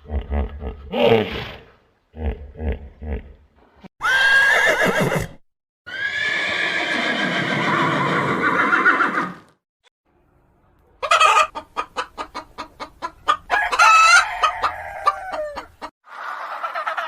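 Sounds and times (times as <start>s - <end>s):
horse whinnying: 4.0s - 9.5s.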